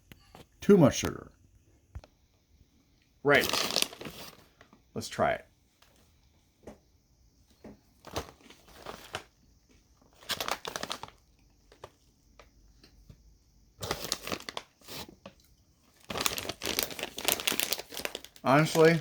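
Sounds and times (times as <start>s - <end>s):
granola crunching: 3.3s - 4.4s, 13.8s - 19.0s.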